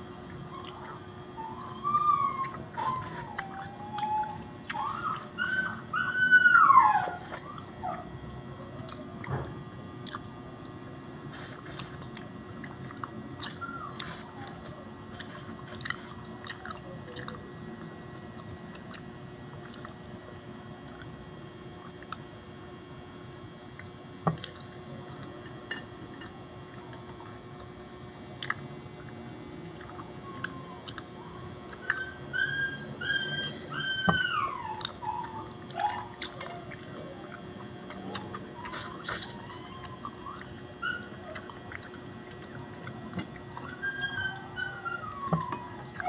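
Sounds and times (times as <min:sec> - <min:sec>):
person chewing food: 0:10.0 - 0:22.4, 0:23.7 - 0:32.4, 0:34.2 - 0:44.2.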